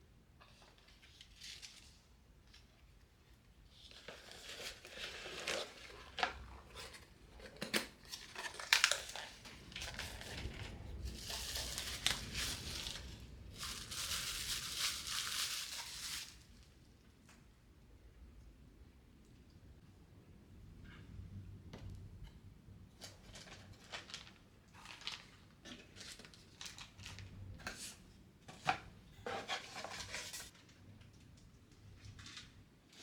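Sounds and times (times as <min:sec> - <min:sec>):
crinkly material rustling: 0:03.7 - 0:16.8, 0:23.0 - 0:28.0, 0:29.2 - 0:33.0.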